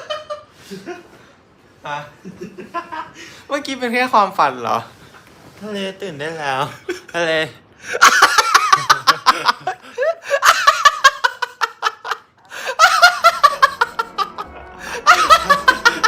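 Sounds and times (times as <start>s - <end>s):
faint music: 12.4s - 16.0s.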